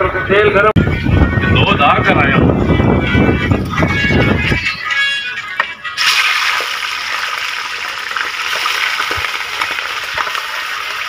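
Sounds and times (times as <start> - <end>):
chicken sizzling in hot oil: 6.0 - 11.0.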